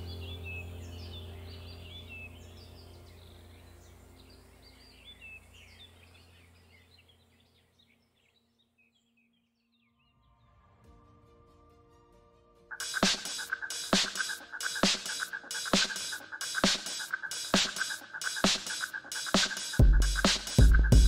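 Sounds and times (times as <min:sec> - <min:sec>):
low steady drone: 0:00.0 - 0:07.0
songbirds chirping and twittering: 0:00.0 - 0:10.6, 0:12.7 - 0:21.0.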